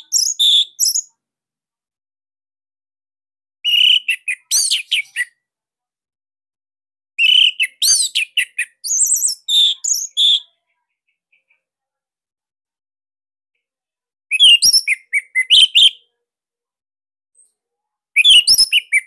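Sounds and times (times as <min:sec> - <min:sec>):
thrush singing whistled phrases: 0:00.0 - 0:01.1, 0:03.6 - 0:05.4, 0:07.2 - 0:10.5, 0:14.3 - 0:16.0, 0:18.2 - 0:19.0.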